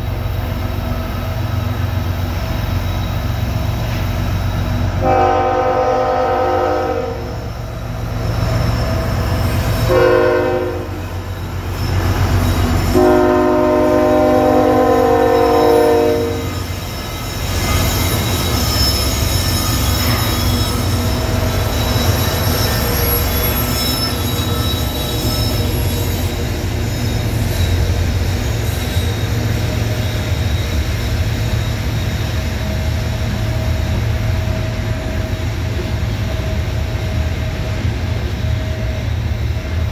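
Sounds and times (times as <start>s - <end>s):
train rumbling past: 0.0s - 39.9s
faint wheel squeal: 1.2s - 4.9s, 7.2s - 9.9s, 10.9s - 33.6s
locomotive air horn blasts: 5.0s - 7.3s, 9.9s - 11.0s, 12.9s - 16.6s.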